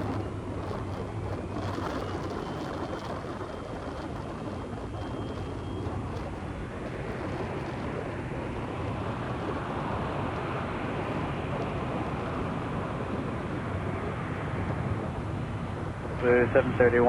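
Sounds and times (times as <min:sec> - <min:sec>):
jet engines at takeoff: 0:00.0 - 0:17.0.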